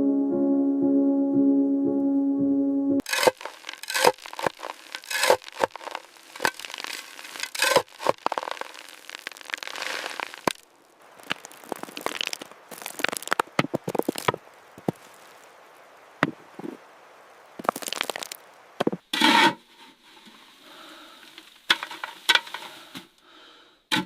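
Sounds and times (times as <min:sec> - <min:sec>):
background music: 0:00.0 - 0:03.0
sharp cracks and crunches: 0:03.0 - 0:15.5, 0:17.6 - 0:19.0.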